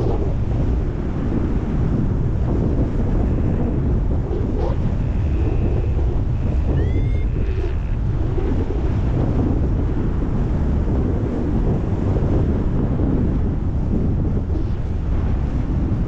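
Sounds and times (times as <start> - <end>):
wind buffeting microphone: 0.0 - 16.0
faint high beeps: 6.7 - 7.7
short rising chirp: 6.8 - 7.6.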